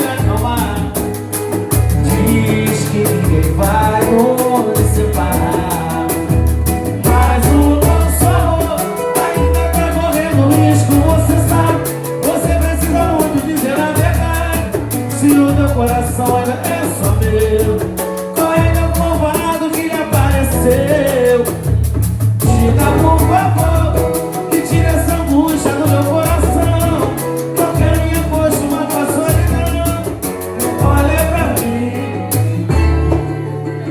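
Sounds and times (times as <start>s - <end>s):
bass line: 0.0s - 33.9s
busy percussion: 0.0s - 33.9s
latin-style music with singing: 0.0s - 33.9s.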